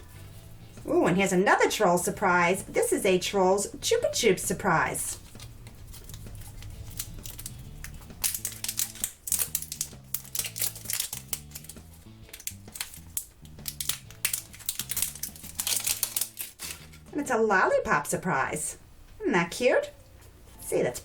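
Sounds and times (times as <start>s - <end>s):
slow background music: 0.0s - 21.0s
plastic packaging crinkling and tearing: 5.1s - 17.1s.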